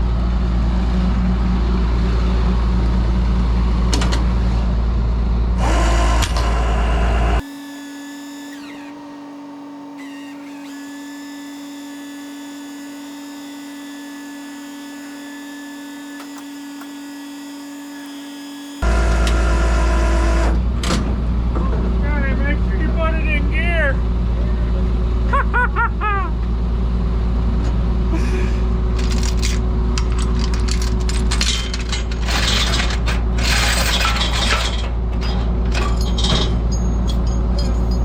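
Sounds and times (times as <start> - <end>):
truck engine rumbling: 0.0 - 7.4, 18.8 - 38.0.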